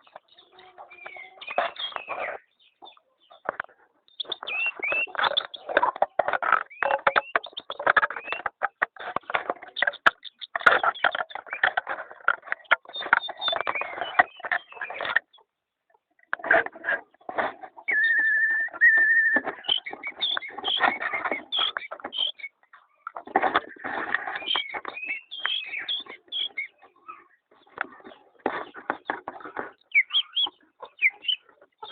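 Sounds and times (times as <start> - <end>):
pet bird chattering and chirping: 0.0 - 15.5, 17.9 - 22.6, 24.2 - 31.9
bird whistling steady note: 17.9 - 19.4.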